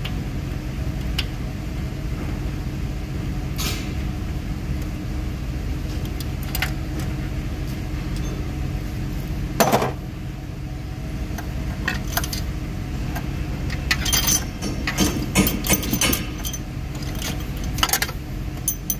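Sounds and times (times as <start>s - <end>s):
steady low hum: 0.0s - 18.9s
metal tools clinking: 13.7s - 18.9s.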